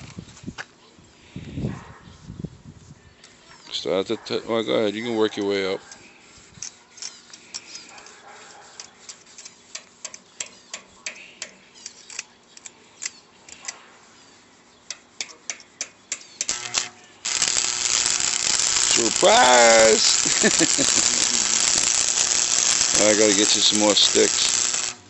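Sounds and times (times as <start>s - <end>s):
welding arc crackling: 16.4s - 25.0s.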